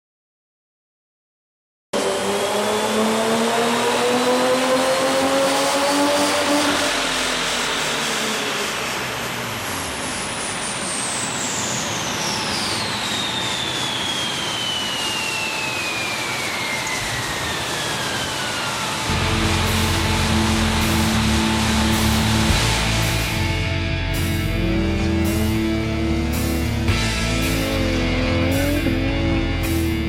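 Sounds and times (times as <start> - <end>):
car engine revving: 2.0 - 13.0, 18.0 - 30.0
high supercharger whine: 2.0 - 30.0.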